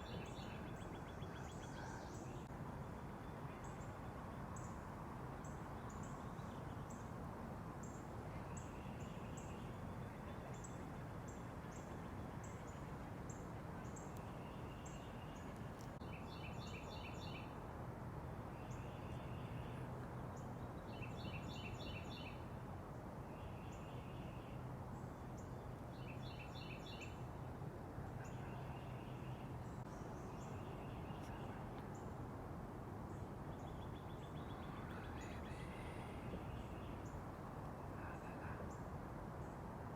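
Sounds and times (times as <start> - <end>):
songbirds calling: 0.0 - 4.8, 7.8 - 17.5, 25.2 - 27.3, 33.1 - 39.5.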